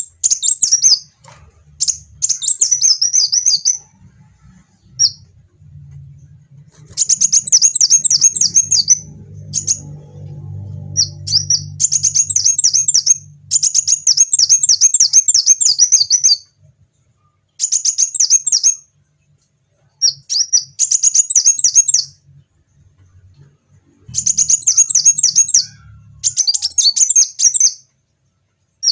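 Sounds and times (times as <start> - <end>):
faint low hum: 0.0 - 28.9
sunbird twittering song: 6.9 - 16.5, 19.9 - 22.2, 24.1 - 27.9.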